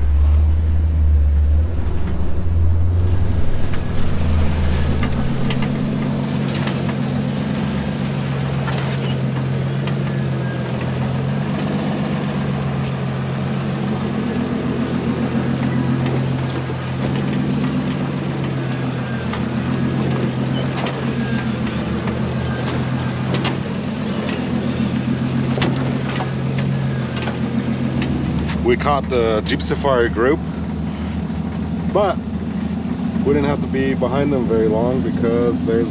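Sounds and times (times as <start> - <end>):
knocks and rattles over bumps: 0.0 - 7.2, 15.2 - 28.7
vehicle engine running: 0.0 - 35.9.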